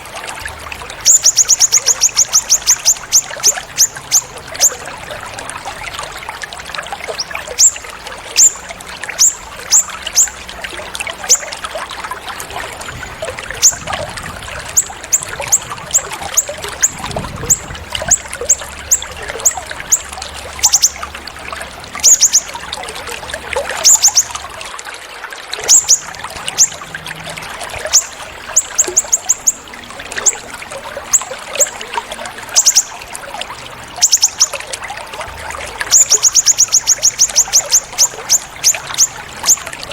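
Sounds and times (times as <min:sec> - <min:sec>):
water trickling: 0:00.0 - 0:39.9
songbird chirping high: 0:00.8 - 0:06.3, 0:07.0 - 0:11.8, 0:13.3 - 0:21.1, 0:22.0 - 0:23.0, 0:23.6 - 0:24.4, 0:25.6 - 0:26.9, 0:27.6 - 0:33.1, 0:33.9 - 0:34.7, 0:35.8 - 0:39.9.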